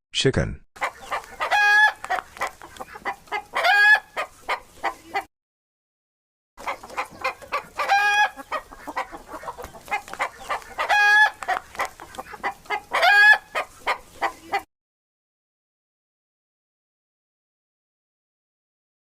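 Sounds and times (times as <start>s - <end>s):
hen clucking: 0.8s - 5.3s, 6.6s - 14.7s.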